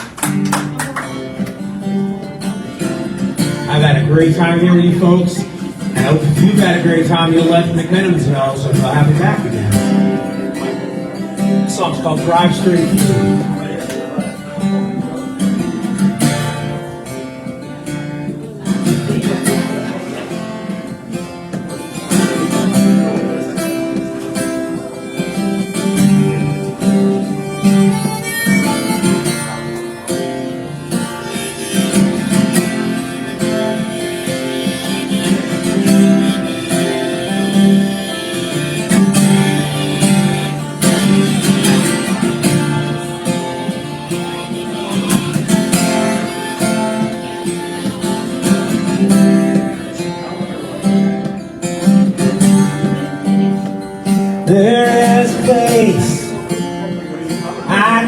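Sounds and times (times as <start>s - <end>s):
acoustic guitar strumming: 0.0s - 58.0s.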